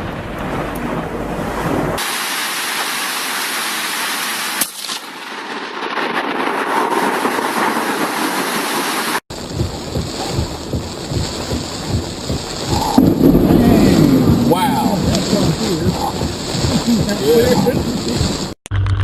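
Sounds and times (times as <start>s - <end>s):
sharp thunder crack: 0.0s - 2.2s, 9.3s - 18.6s
low storm rumbling: 0.0s - 2.6s, 9.3s - 18.6s
heavy rain hissing: 2.0s - 4.7s, 7.2s - 18.6s.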